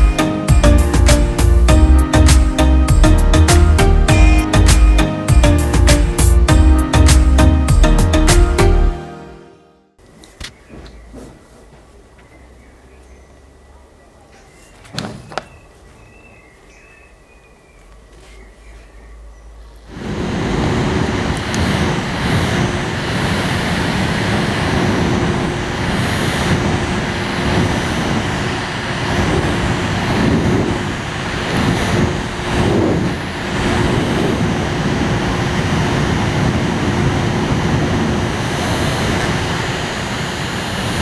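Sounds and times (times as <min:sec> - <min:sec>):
air conditioner fan running: 0:10.0 - 0:41.0.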